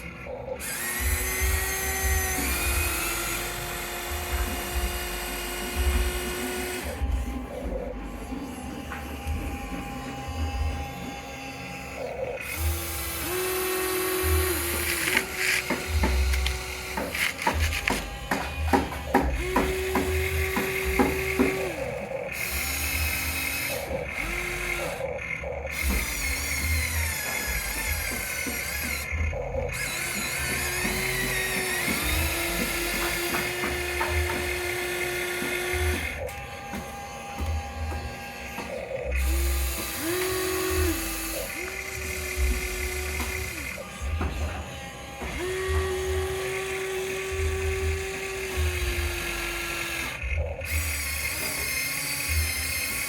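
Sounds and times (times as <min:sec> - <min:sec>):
gear clicks: 0:00.0 - 0:53.0
small electric motors whining: 0:00.0 - 0:53.0.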